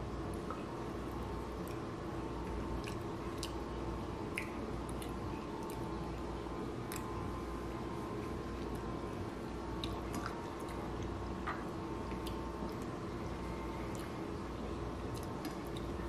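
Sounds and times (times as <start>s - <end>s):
steady low hum: 0.0s - 16.0s
person chewing wetly: 0.4s - 7.3s, 9.7s - 11.2s, 12.0s - 13.0s, 13.7s - 14.3s, 15.1s - 16.0s.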